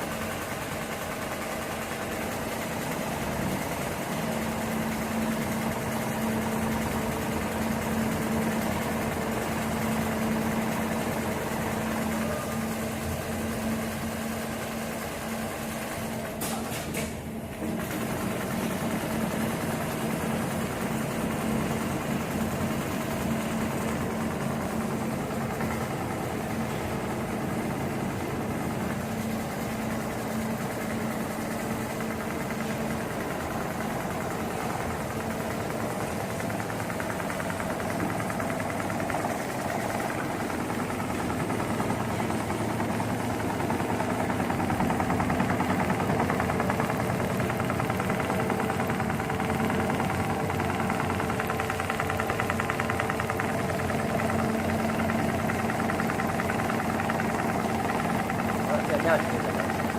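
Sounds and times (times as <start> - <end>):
sewing machine stitching rapidly: 0.0 - 59.9.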